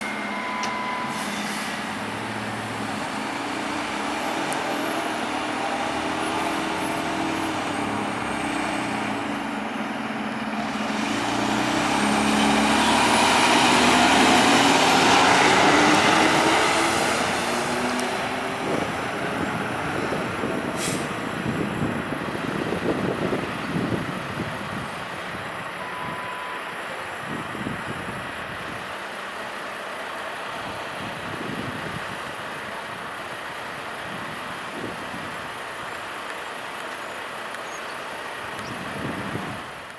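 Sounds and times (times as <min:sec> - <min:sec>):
fire truck diesel engine passing: 0:00.0 - 0:26.0
air brake hiss: 0:01.0 - 0:02.0, 0:20.8 - 0:21.2.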